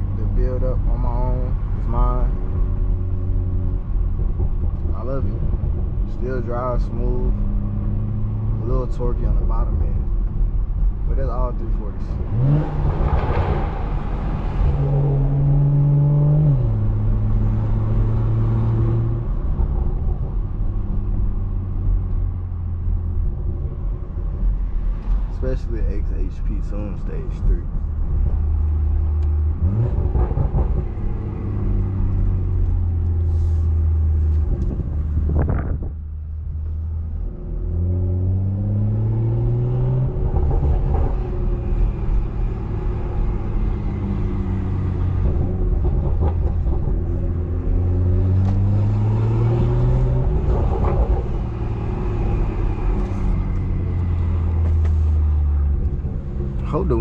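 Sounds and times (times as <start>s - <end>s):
car engine accelerating: 0.0s - 57.0s
wind on microphone: 34.3s - 36.7s.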